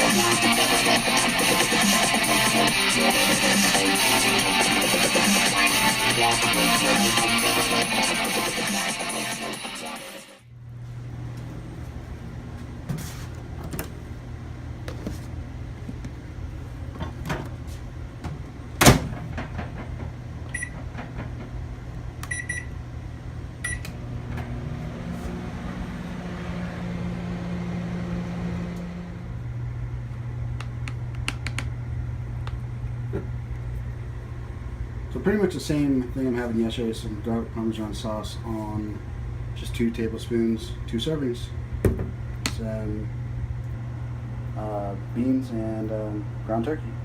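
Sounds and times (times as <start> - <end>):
microwave oven humming: 0.0 - 47.0
short beeps: 22.3 - 22.7.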